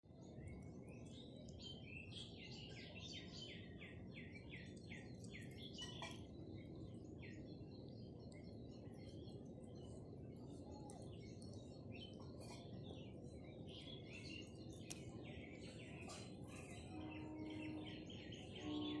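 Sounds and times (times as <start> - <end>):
bird chirping: 10.9 - 19.0.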